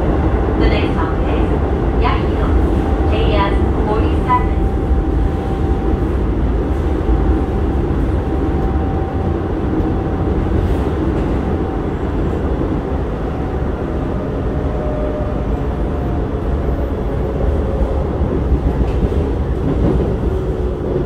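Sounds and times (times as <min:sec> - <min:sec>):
rumble of wheels on rail: 0:00.0 - 0:21.0.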